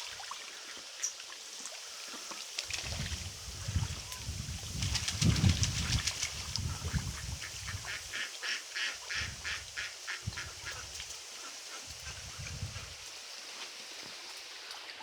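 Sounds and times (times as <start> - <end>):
ducks quacking: 6.6 - 13.0.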